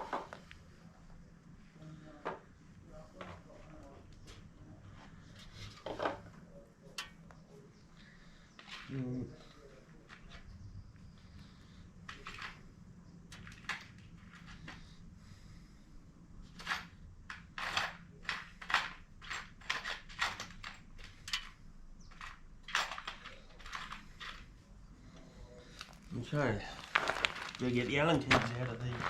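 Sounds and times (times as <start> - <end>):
sharp clicks and crunches: 16.5 - 24.6, 25.7 - 29.0.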